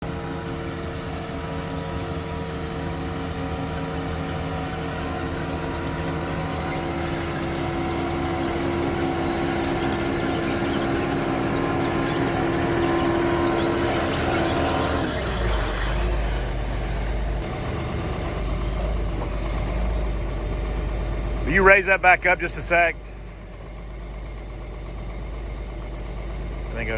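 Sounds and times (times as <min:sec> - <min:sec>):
diesel engine running: 0:00.0 - 0:26.9
high whine: 0:06.0 - 0:24.1, 0:25.2 - 0:26.9.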